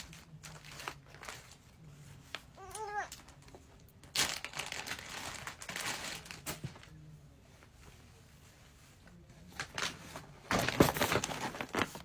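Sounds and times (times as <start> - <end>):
packaging crinkling and rustling: 0.0 - 7.0, 9.6 - 12.0.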